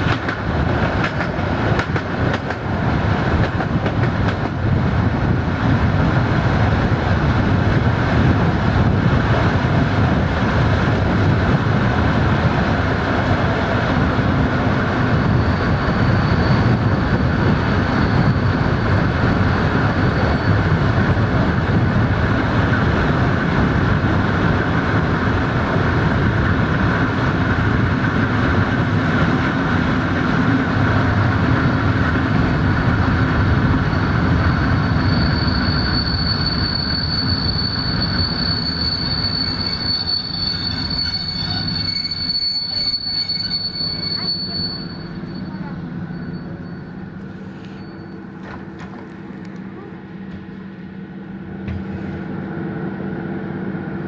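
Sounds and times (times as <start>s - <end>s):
train wheels rumbling on rails: 0.0s - 54.0s
high wheel squeal: 14.6s - 22.2s, 30.4s - 48.8s.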